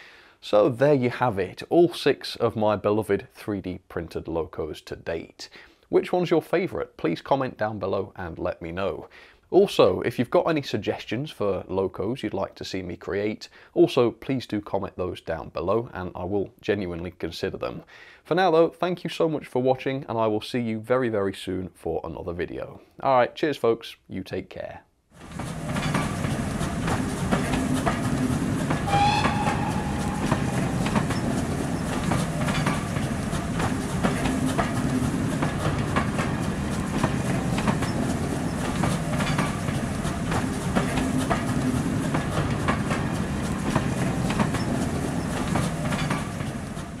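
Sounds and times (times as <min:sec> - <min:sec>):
train carriages rumbling past: 0:25.2 - 0:47.0
wheels clicking over rail joints: 0:25.2 - 0:47.0
high-pitched tone: 0:28.9 - 0:31.4.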